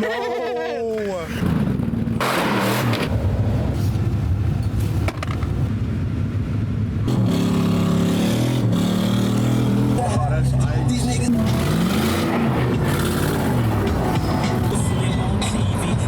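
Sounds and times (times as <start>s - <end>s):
truck engine droning: 7.1s - 16.0s.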